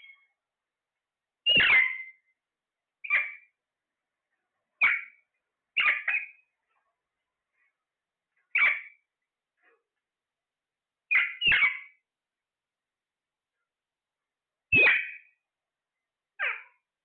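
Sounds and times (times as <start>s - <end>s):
parrot squawking: 1.5s - 2.1s, 3.0s - 3.5s, 4.8s - 5.2s, 5.8s - 6.4s, 8.6s - 9.0s, 11.1s - 12.0s, 14.8s - 15.3s, 16.4s - 16.8s.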